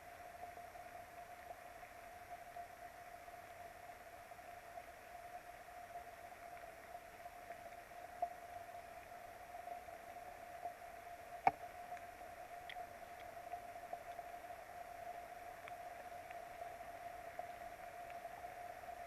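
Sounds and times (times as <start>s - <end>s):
constant hum-like tone: 0.0s - 19.0s
rain hiss: 0.0s - 19.0s.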